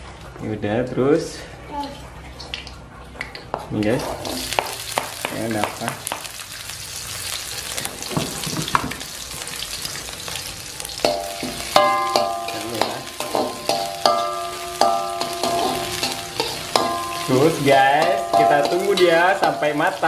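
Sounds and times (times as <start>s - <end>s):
shallots sizzling in oil: 3.7s - 20.0s
spatula knocking on a wok: 4.5s - 6.3s, 11.0s - 19.8s.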